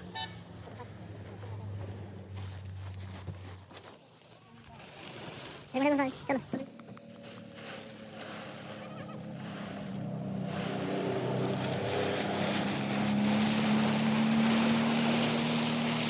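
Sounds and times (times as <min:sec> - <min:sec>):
engine humming: 0:06.3 - 0:16.0.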